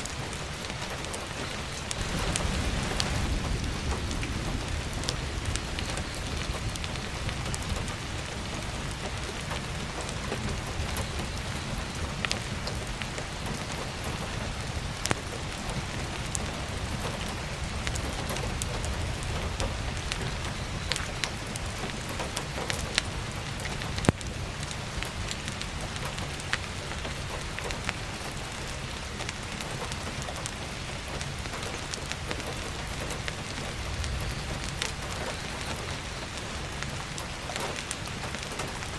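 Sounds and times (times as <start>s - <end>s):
firewood crackling and popping: 0.0s - 38.9s
heavy rain: 0.0s - 38.9s.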